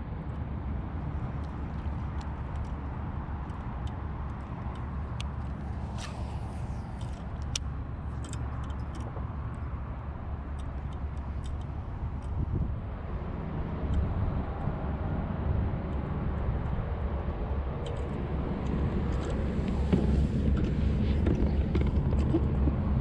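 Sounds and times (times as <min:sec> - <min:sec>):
wind buffeting microphone: 0:11.2 - 0:23.0.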